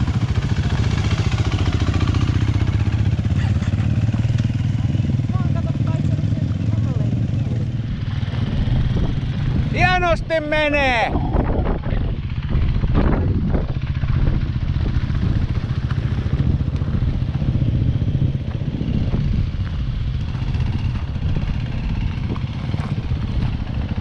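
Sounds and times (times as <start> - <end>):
dirt bike engine idling: 0.0 - 24.0.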